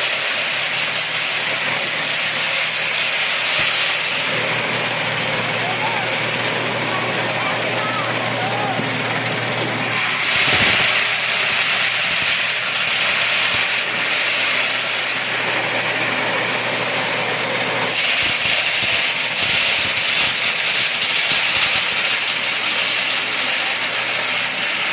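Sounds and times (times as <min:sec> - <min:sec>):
nut-cracking machine clatter: 0:00.0 - 0:17.0, 0:17.9 - 0:24.9
low machine hum: 0:04.0 - 0:18.0.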